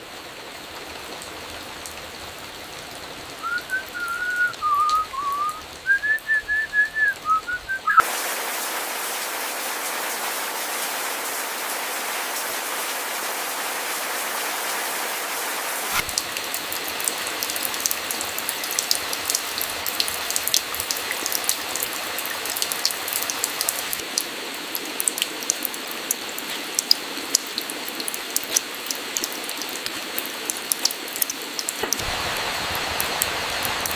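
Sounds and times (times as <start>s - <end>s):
rain hissing: 0.0s - 33.9s
raindrops hitting hard surface: 0.0s - 33.9s
high whistle: 3.4s - 8.0s.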